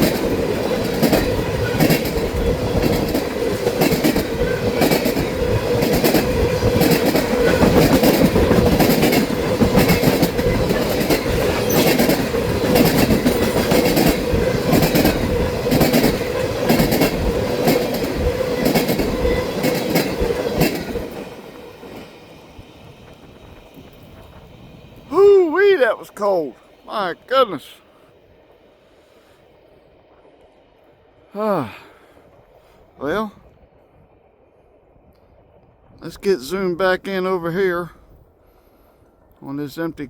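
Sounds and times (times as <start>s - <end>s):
freight train wheels clicking: 0.0s - 25.4s.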